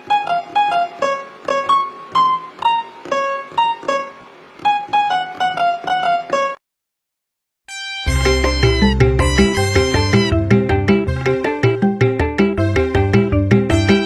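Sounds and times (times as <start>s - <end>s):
keyboard melody: 7.7s - 14.0s.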